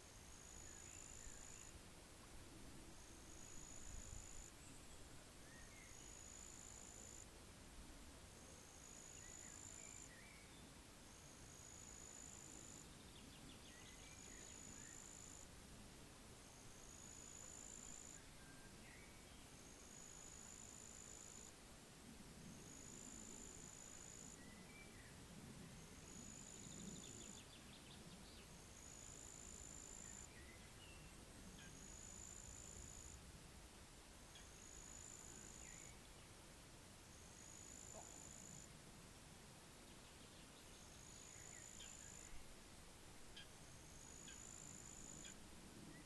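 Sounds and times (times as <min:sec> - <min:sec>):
low rumble of wind: 0:00.0 - 0:06.0, 0:12.7 - 0:16.9, 0:21.4 - 0:34.6, 0:44.8 - 0:46.0.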